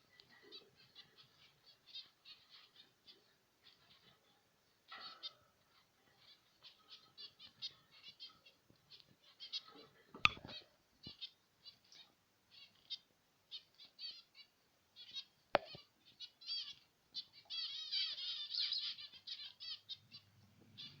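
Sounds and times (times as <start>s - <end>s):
finches chirping: 0.0s - 21.0s
sharp click: 10.2s - 10.5s.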